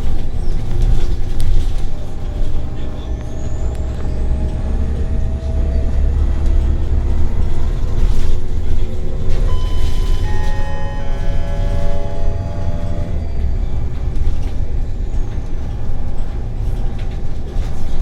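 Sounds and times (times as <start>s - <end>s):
bus engine rumble: 0.0s - 18.0s
drivetrain whine rising in pitch: 9.4s - 15.2s
high steady whining tones: 9.4s - 15.4s.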